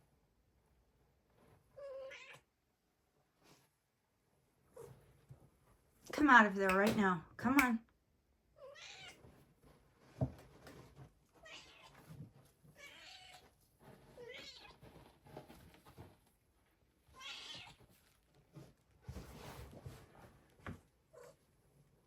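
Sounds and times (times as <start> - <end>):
cat meowing softly: 1.7 - 2.5, 8.6 - 9.2, 11.4 - 13.5, 14.1 - 14.8, 17.1 - 17.8
rustling and scratching in bedding: 9.2 - 21.1.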